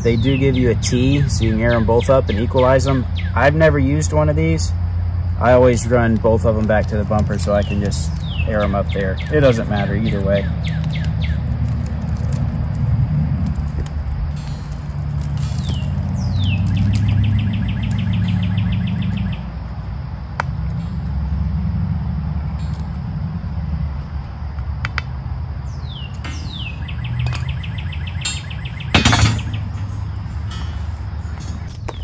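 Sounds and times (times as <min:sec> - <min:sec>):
songbird whistle and trill: 0:00.0 - 0:03.5, 0:07.6 - 0:11.5, 0:15.4 - 0:19.5, 0:25.7 - 0:29.8
low steady rumble: 0:00.0 - 0:32.0.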